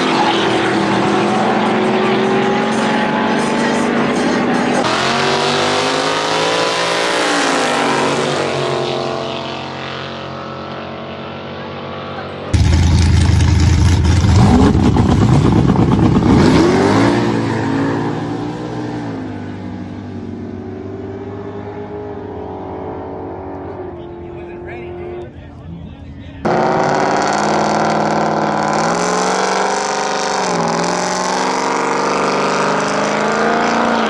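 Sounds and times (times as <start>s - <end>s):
vehicle engine running: 12.2s - 17.0s
engine revving hard: 12.5s - 18.8s, 26.4s - 34.0s.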